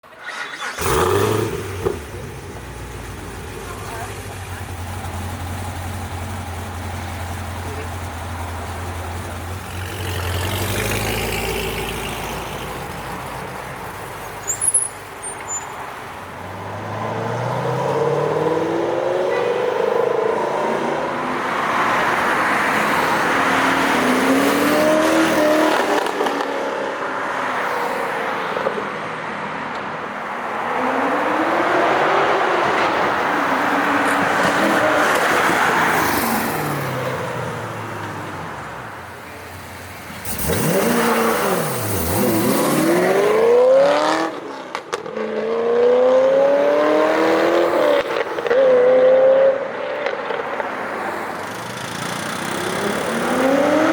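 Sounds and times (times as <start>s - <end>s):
car engine revving: 0.3s - 14.1s, 40.2s - 53.9s.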